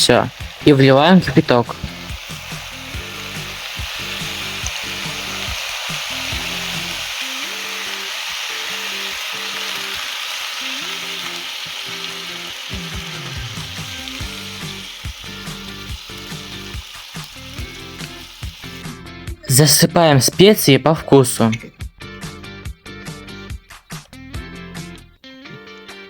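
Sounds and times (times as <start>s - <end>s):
background music with bass line: 0.0s - 7.2s, 12.7s - 20.7s, 21.3s - 26.0s
food sizzling in a pot: 0.0s - 19.6s.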